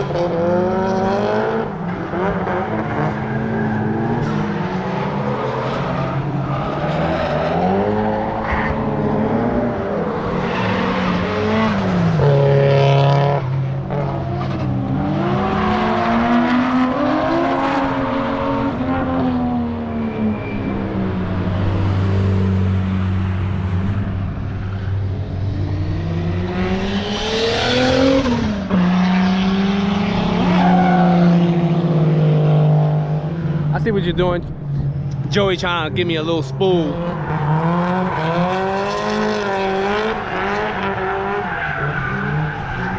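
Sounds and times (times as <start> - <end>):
drift car engines revving: 0.0 - 42.9
tyre squeal: 19.9 - 21.7.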